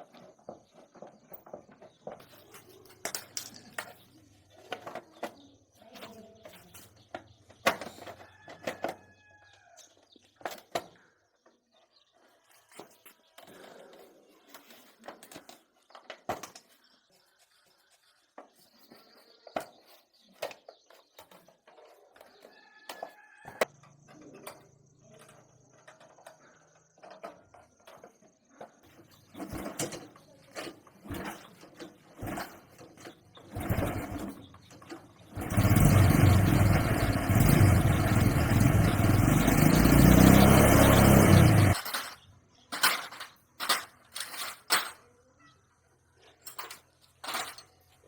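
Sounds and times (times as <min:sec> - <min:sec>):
parts clicking and knocking: 0:00.0 - 0:09.2, 0:09.8 - 0:11.6, 0:12.7 - 0:16.8, 0:18.3 - 0:45.2, 0:46.3 - 0:48.0
motorcycle engine running: 0:33.4 - 0:41.8.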